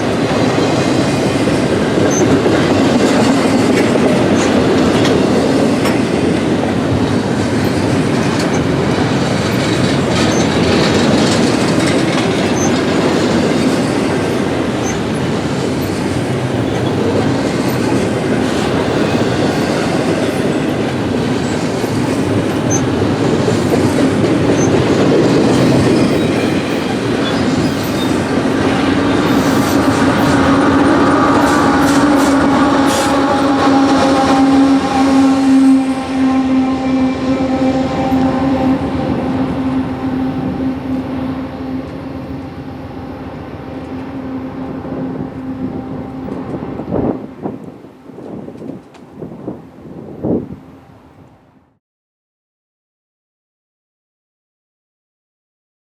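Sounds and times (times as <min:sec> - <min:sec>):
freight train wheels clacking: 0:00.0 - 0:49.3
train cars rumbling: 0:00.0 - 0:51.4
steady droning tone: 0:28.3 - 0:48.1.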